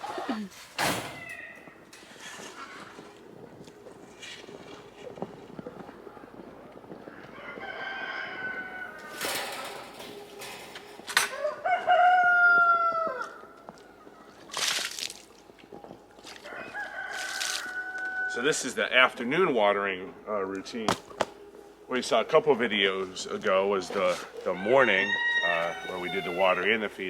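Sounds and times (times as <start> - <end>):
rooster crowing: 1.0 - 1.8, 7.0 - 10.2, 11.2 - 13.6, 16.4 - 18.8, 24.0 - 26.8
hen clucking: 23.4 - 26.9.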